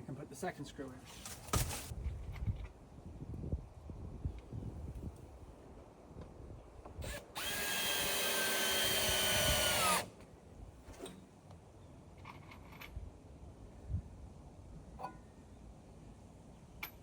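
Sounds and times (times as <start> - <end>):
power drill driving screw: 7.0 - 10.1.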